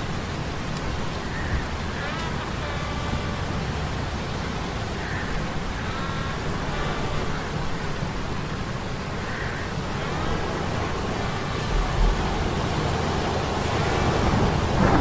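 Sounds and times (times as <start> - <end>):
rain: 0.0 - 15.0
surf: 6.4 - 15.0
metal gears humming: 11.6 - 13.1.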